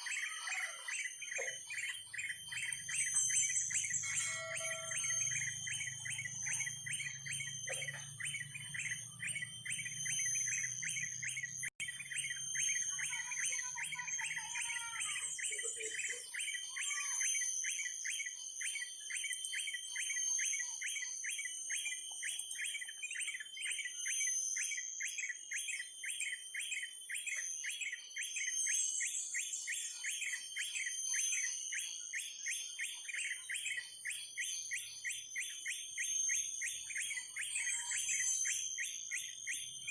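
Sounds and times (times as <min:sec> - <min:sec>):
rapid high chirps: 0:00.0 - 0:15.4.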